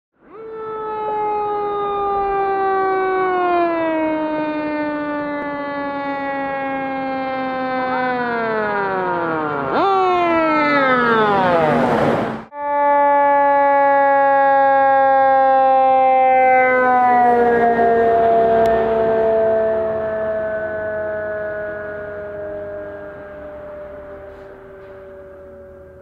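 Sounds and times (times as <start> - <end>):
fire truck siren wailing: 0.2 - 26.0.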